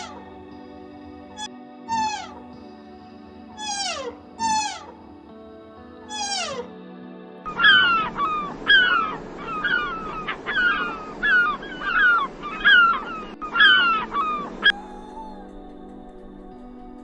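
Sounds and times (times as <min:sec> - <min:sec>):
background music: 0:00.0 - 0:17.0
animal calls falling in pitch: 0:01.9 - 0:02.4, 0:03.6 - 0:05.0, 0:06.1 - 0:06.7.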